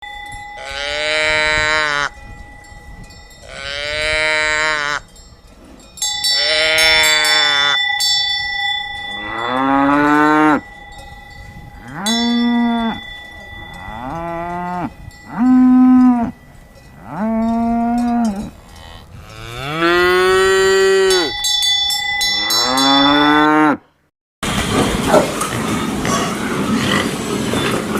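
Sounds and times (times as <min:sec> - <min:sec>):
cattle mooing: 0:03.4 - 0:05.0, 0:06.4 - 0:07.8, 0:09.1 - 0:10.6, 0:11.8 - 0:13.0, 0:13.7 - 0:16.4, 0:17.0 - 0:21.3, 0:22.4 - 0:23.8.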